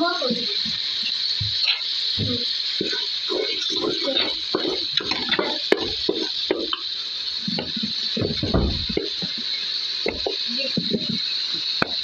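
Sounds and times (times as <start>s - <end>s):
steady hiss: 0.0s - 12.0s
utensil scraping a pot: 2.8s - 11.2s.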